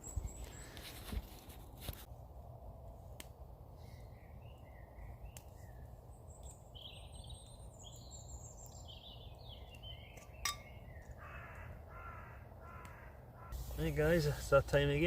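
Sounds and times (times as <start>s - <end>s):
small birds chirping: 3.8s - 15.0s.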